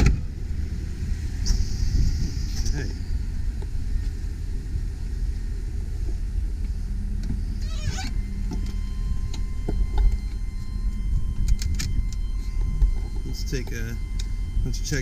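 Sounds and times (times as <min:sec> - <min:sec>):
truck engine idling: 0:00.0 - 0:15.0
warbling squeak: 0:07.5 - 0:09.0.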